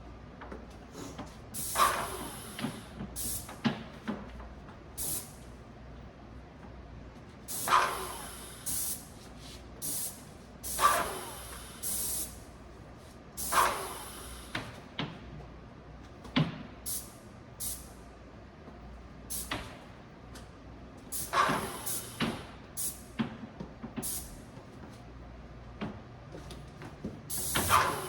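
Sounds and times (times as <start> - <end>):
short hissing bursts: 7.5 - 9.1, 9.8 - 12.4, 21.1 - 22.2.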